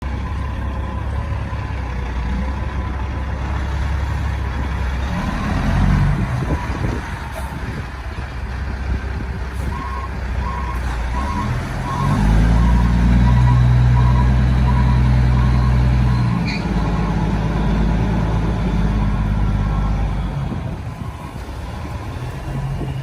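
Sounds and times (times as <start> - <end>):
truck engine rumbling: 0.0 - 23.0
reversing alarm beeping: 9.7 - 17.9.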